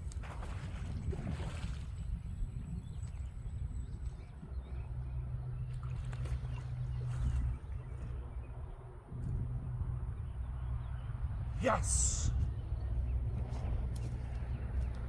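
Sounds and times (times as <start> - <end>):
wind on microphone: 0.0 - 4.7.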